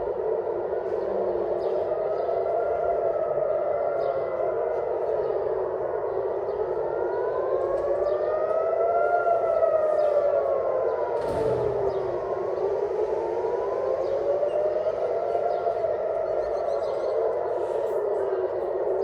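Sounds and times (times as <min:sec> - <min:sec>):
air-raid siren wailing: 0:00.0 - 0:19.0.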